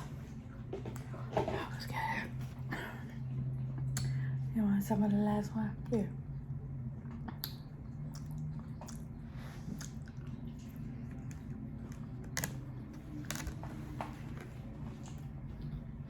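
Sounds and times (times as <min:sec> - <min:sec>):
low hum: 0:00.0 - 0:16.0
chewing mouth sounds: 0:07.0 - 0:13.6.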